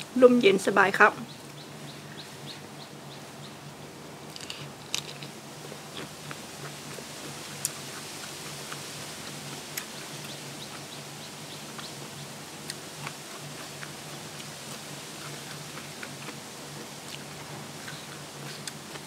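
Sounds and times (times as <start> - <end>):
steady low hum: 0.0 - 19.0
crunchy food being chewed: 4.3 - 19.0.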